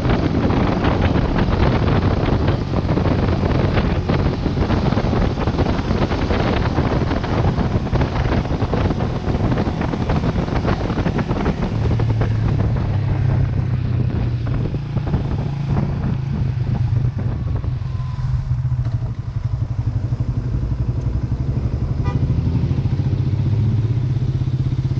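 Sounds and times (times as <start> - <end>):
motorcycle engine running: 0.0 - 24.9
wind and road rush: 0.0 - 24.9.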